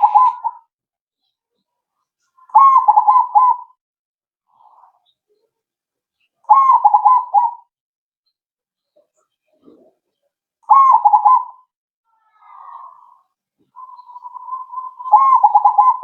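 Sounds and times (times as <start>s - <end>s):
dove rolling coos: 0.0s - 0.6s, 6.5s - 7.6s, 10.7s - 11.6s, 13.8s - 16.0s.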